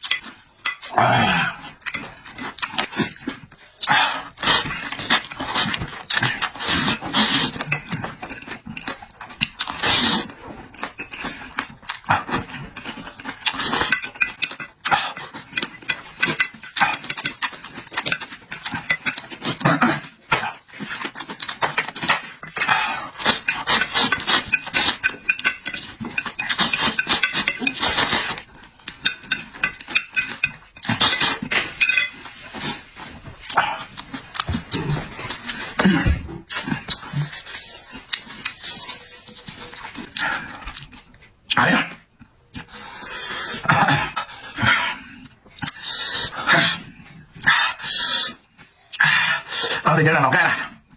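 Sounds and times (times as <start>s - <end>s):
slurping food: 0.4s - 41.1s.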